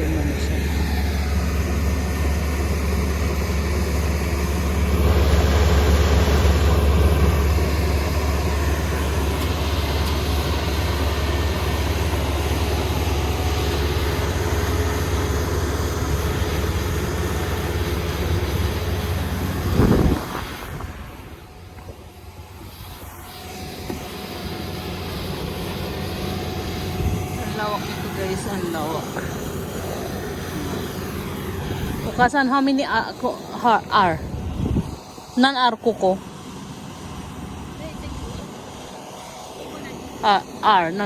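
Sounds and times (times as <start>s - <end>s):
combine harvester engine drone: 0.0s - 41.0s.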